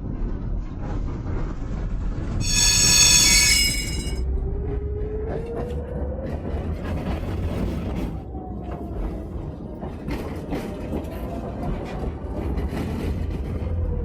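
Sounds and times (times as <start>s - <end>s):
tram wheels squealing: 2.4s - 4.2s
tram rumbling: 5.4s - 14.0s.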